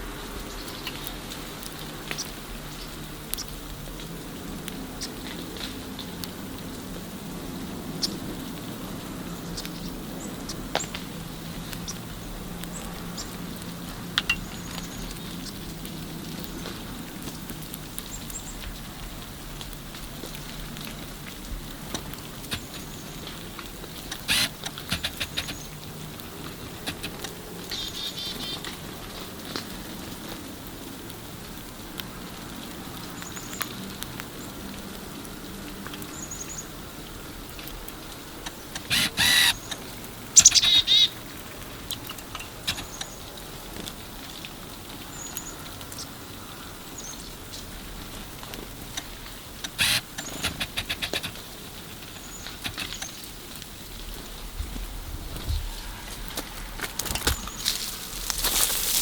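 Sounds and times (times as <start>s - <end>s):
rapid sharp tapping: 24.1s - 25.7s, 49.7s - 51.4s
nasal bird calls: 38.8s - 39.8s, 40.4s - 41.2s
bird chirping: 40.4s - 41.1s.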